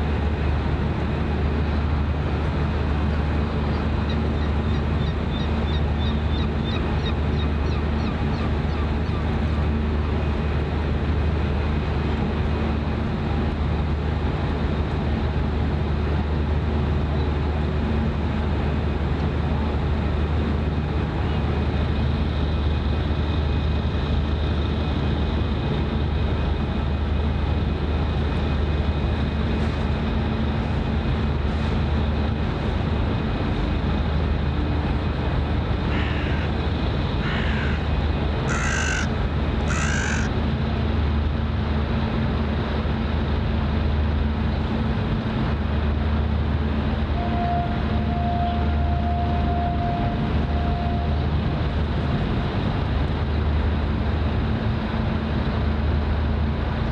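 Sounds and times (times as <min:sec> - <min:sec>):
crow cawing: 0:35.9 - 0:36.6, 0:37.2 - 0:37.9, 0:38.5 - 0:40.3.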